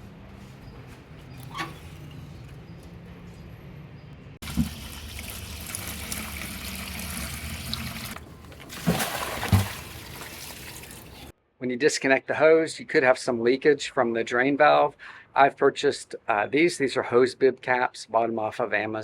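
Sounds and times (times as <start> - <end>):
water running through hose into bucket: 4.4 - 11.3.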